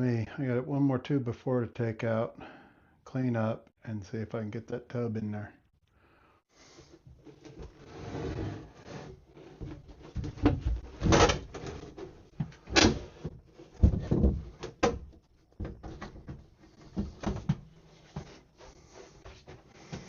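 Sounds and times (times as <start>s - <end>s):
building work knocks and thuds: 9.6s - 18.4s.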